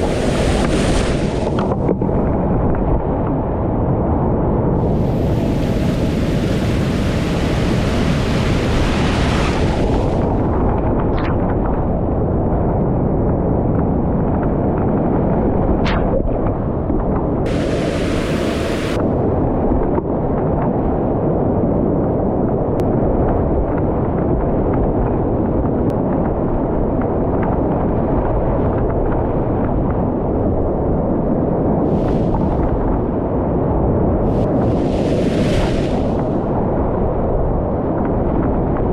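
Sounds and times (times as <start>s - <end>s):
whitewater rapids rushing: 17.5s - 19.0s.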